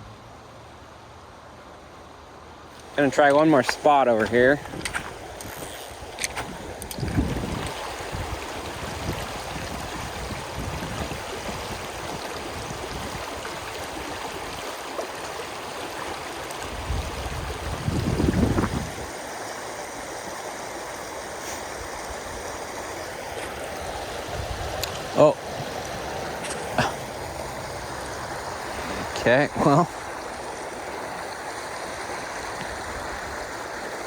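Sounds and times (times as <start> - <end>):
stream rushing: 0.0 - 34.0.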